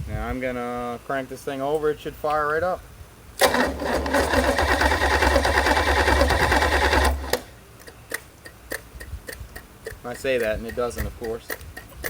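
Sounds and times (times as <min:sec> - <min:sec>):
starter motor cranking engine: 0:03.4 - 0:07.5.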